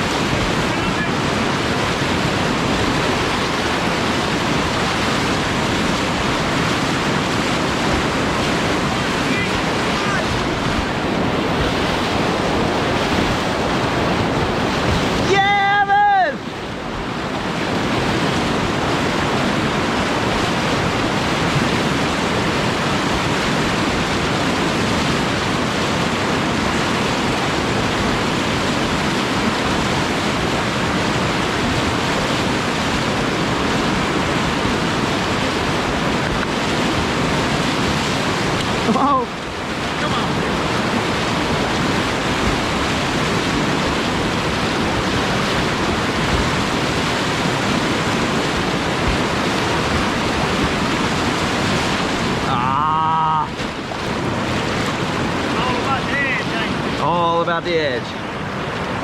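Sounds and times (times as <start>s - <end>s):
whitewater rushing: 0.0s - 59.0s
person shouting: 15.3s - 16.4s, 52.5s - 53.5s.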